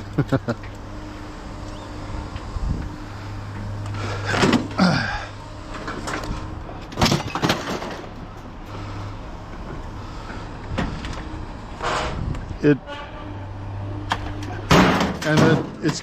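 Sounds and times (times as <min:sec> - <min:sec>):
low engine hum: 0:00.0 - 0:15.1
metallic clanks and knocks: 0:06.9 - 0:08.6, 0:14.0 - 0:16.0.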